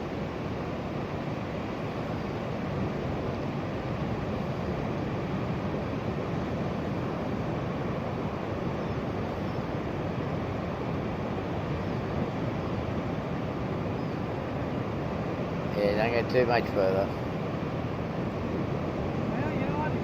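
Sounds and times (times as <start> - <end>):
surf breaking on beach: 14.4 - 20.0.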